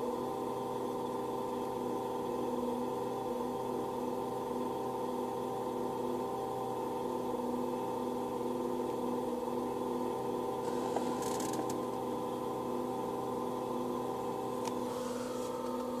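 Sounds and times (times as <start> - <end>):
car air conditioning hum: 7.4 - 16.0.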